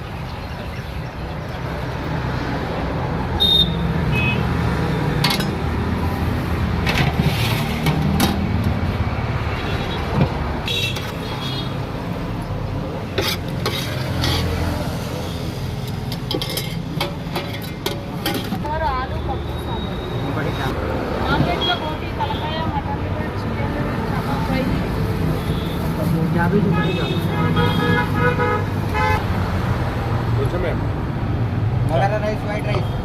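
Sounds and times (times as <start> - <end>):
road traffic rumble: 0.0 - 33.0
dishes and utensils clattering: 16.1 - 18.6.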